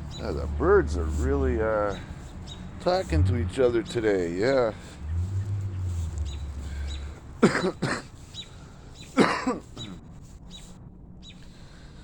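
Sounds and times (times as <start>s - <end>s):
faint bird chirps: 4.6s - 7.3s, 8.2s - 11.5s
man coughing: 7.4s - 8.2s, 9.2s - 10.0s.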